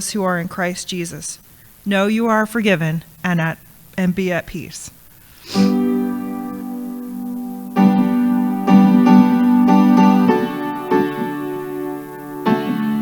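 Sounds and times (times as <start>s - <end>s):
piano chords: 5.6s - 13.0s.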